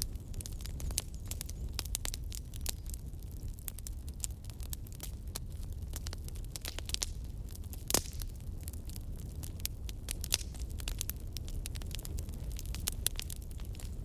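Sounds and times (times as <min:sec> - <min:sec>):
campfire crackling and popping: 0:00.0 - 0:14.0
low rumble of flames: 0:00.0 - 0:14.0.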